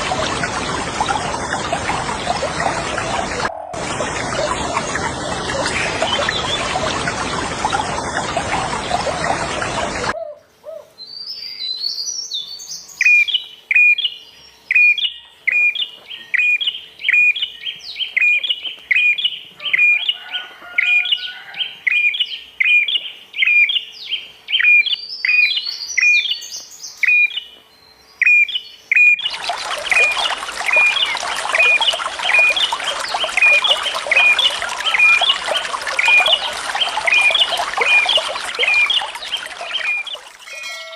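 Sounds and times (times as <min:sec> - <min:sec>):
running water rushing: 0:00.0 - 0:10.2, 0:29.2 - 0:40.9
songbird chirping: 0:20.9 - 0:40.9.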